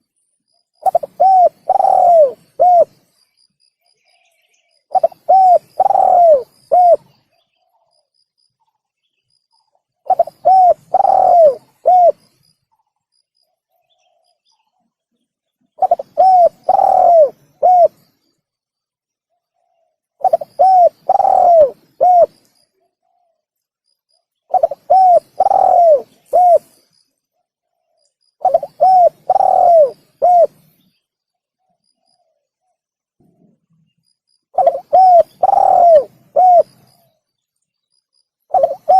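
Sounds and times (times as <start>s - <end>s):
dove cooing: 0.8s - 3.0s, 4.9s - 7.2s, 10.0s - 12.3s, 15.8s - 18.0s, 20.2s - 22.4s, 24.5s - 26.8s, 28.4s - 30.7s, 34.5s - 37.1s, 38.5s - 38.9s.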